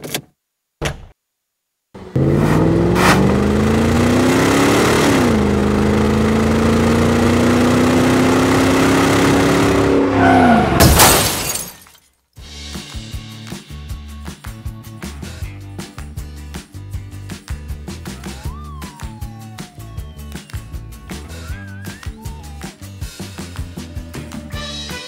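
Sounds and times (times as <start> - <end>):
car engine revving: 2.0 - 10.8.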